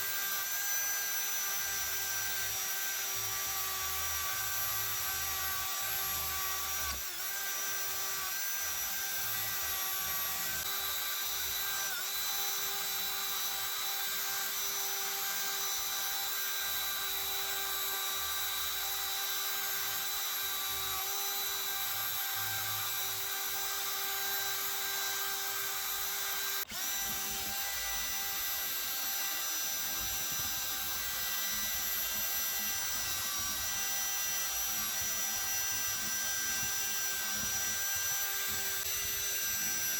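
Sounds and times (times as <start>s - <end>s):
high-speed power tool running: 0.0s - 39.9s.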